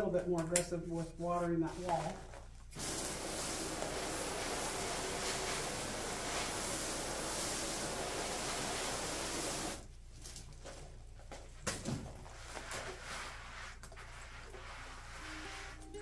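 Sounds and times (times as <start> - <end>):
water mister spraying hiss: 2.7 - 9.9.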